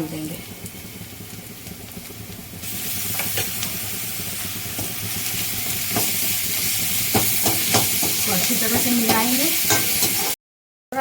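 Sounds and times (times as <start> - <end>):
onions sizzling in hot oil: 0.0 - 10.4
spoon tapping a pan: 5.6 - 6.2, 7.1 - 10.3.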